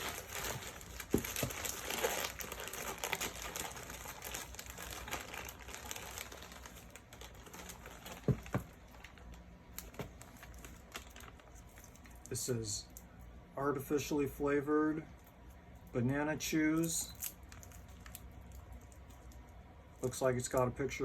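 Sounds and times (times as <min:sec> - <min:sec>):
plastic packaging crinkling: 0:00.0 - 0:12.4, 0:16.8 - 0:19.4.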